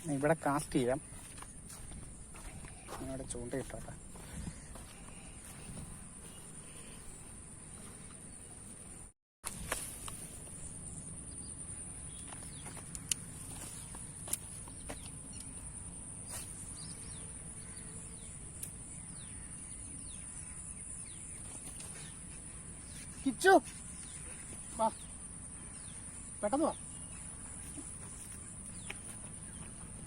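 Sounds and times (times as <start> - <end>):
bird chirps: 16.3 - 30.0.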